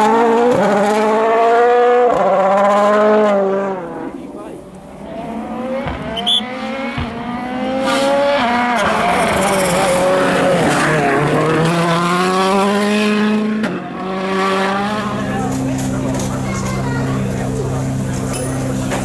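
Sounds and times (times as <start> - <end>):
rally car engine revving past: 0.0 - 4.2, 5.0 - 19.0.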